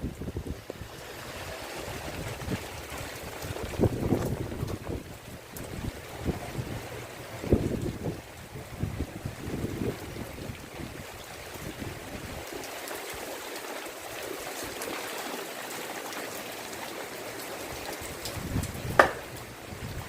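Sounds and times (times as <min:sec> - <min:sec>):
wind gusting on microphone: 0:00.0 - 0:12.6, 0:17.7 - 0:20.0
steady rain falling: 0:00.0 - 0:20.0.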